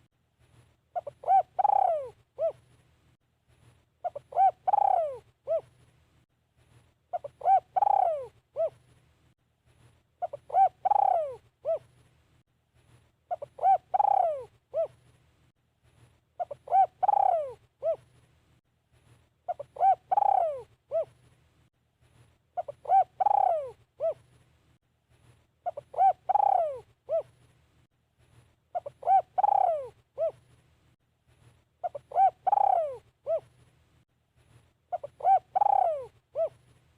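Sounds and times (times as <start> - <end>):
dove cooing: 0.9 - 2.7, 4.0 - 5.8, 7.1 - 8.8, 10.2 - 11.9, 13.3 - 15.0, 16.4 - 18.1, 19.5 - 21.2, 22.6 - 24.3, 25.6 - 27.4, 28.7 - 30.4, 31.8 - 33.6, 34.9 - 36.6.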